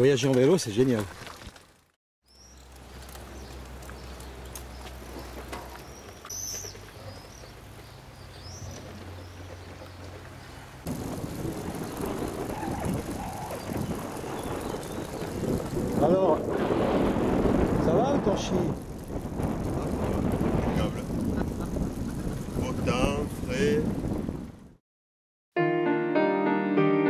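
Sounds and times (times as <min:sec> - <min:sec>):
birds chirping: 0:02.2 - 0:15.8.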